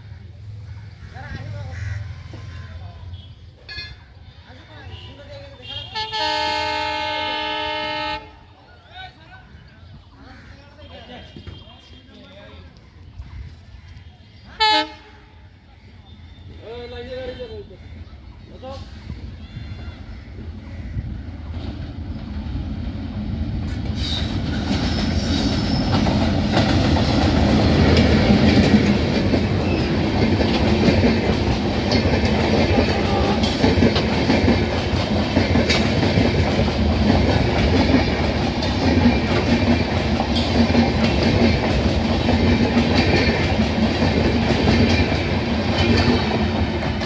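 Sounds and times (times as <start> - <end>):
passenger train passing: 0.0 - 47.0.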